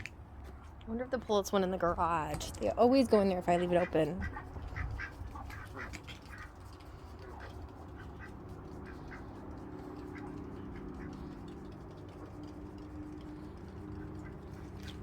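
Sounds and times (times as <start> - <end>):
steady low hum: 0.0 - 15.0
bird and poultry calls: 3.5 - 15.0.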